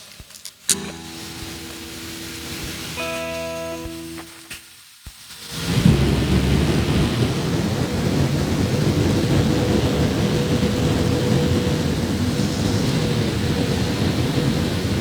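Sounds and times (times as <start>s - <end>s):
loud low rumbling noise: 5.7s - 15.0s.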